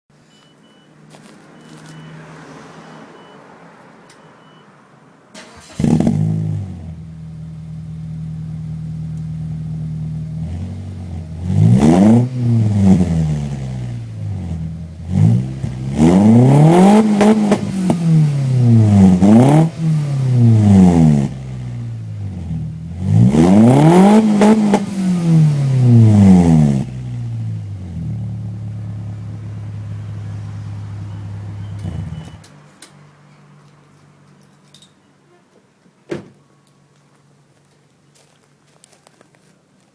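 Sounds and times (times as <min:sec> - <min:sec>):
car engine revving and idling: 0:05.5 - 0:32.5.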